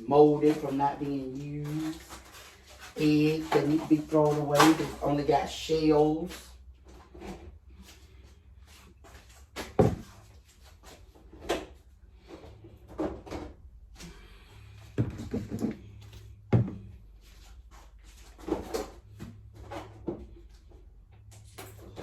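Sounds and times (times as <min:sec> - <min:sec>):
containers knocking and clunking: 0:09.5 - 0:10.2, 0:14.8 - 0:17.1.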